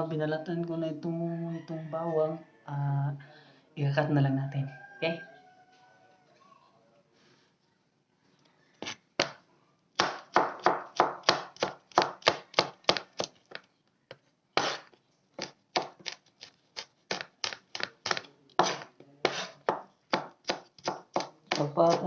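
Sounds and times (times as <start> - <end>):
knife chopping on cutting board: 10.0 - 13.3, 14.6 - 16.2, 17.1 - 22.0.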